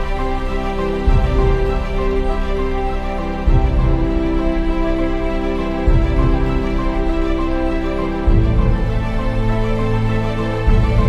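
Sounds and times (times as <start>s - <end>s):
slow music of held chords: 0.0s - 11.0s.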